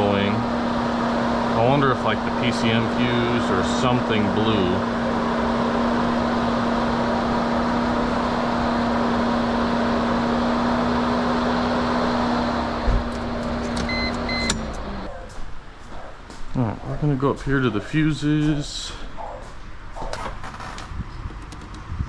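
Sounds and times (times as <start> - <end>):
electric fan humming: 0.0 - 22.0
short electronic beeps: 13.8 - 14.7.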